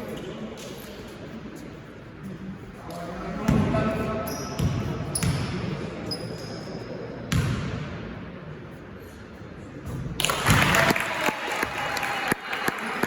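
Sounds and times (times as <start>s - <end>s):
shoe squeaks: 4.0s - 7.2s
basketball bouncing on court: 4.6s - 5.7s, 7.3s - 7.9s.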